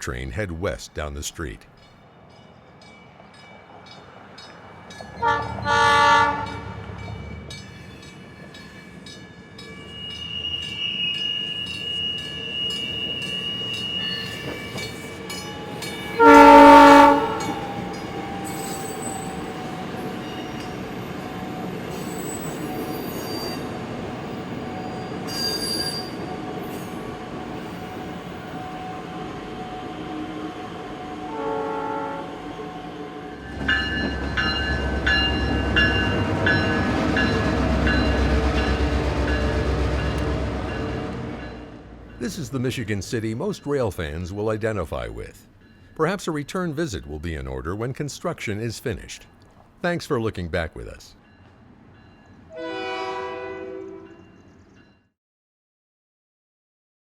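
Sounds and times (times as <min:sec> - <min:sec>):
train cars rumbling: 0:00.0 - 0:54.9
train horn blasts: 0:05.1 - 0:07.0, 0:16.2 - 0:20.1, 0:26.0 - 0:33.9, 0:52.5 - 0:54.2
high wheel squeal: 0:09.7 - 0:16.2, 0:17.4 - 0:21.0, 0:21.9 - 0:23.7, 0:24.3 - 0:27.0.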